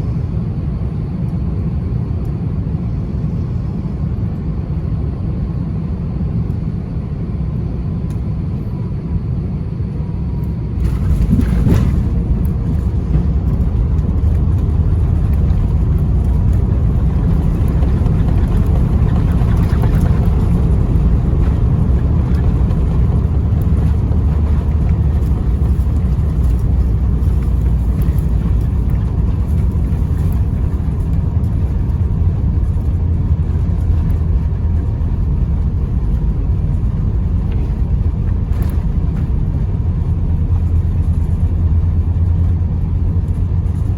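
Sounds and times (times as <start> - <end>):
airplane cabin rumble: 0.0 - 43.9.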